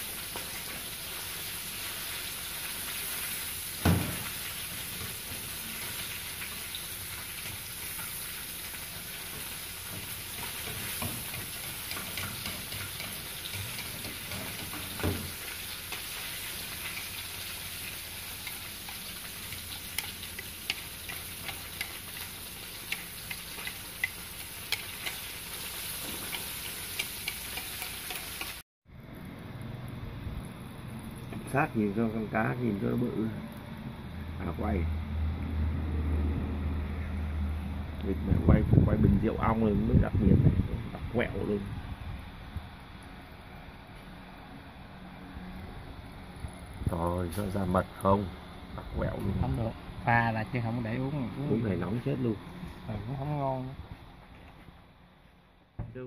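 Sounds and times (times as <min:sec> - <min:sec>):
fish sizzling in hot oil: 0:00.0 - 0:28.6.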